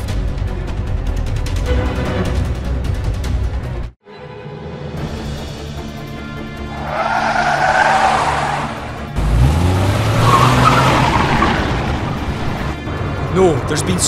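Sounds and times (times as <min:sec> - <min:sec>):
background music: 0:00.0 - 0:14.0
tyres skidding on loose road: 0:06.4 - 0:13.6
car engine revving: 0:06.4 - 0:14.0.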